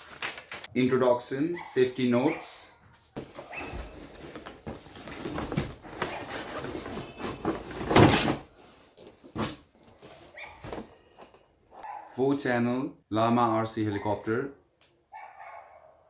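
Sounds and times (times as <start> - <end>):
packaging rustling and scraping: 3.2 - 11.5.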